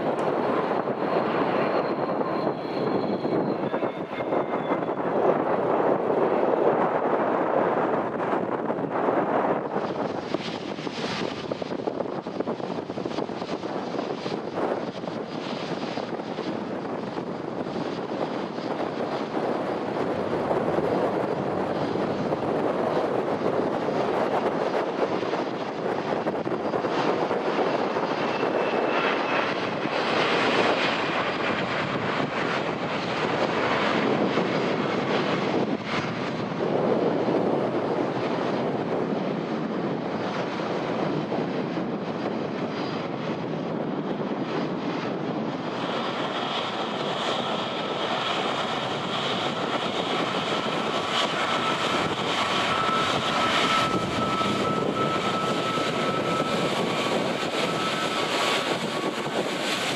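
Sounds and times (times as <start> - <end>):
aircraft engines running: 0.0 - 59.9
wind gusting on microphone: 0.0 - 59.9
steady high whine: 45.5 - 59.9.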